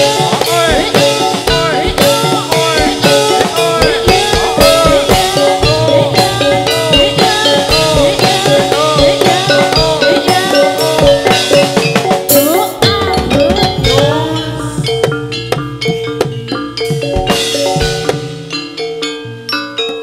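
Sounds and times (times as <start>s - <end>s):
rapid drum strokes: 0.0s - 19.2s
ringing pitched percussion tones: 0.0s - 20.0s
cymbal crash: 5.6s - 8.9s.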